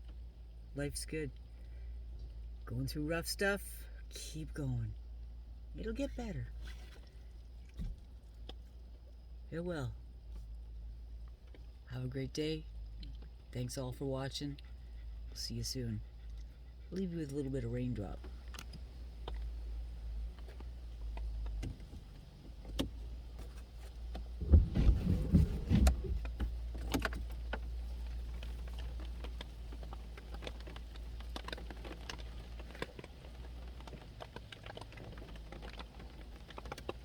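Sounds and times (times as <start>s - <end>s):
rain tapping on vehicle roof: 18.3s - 37.0s
low rumble: 24.3s - 29.1s
low thumps: 24.4s - 26.6s.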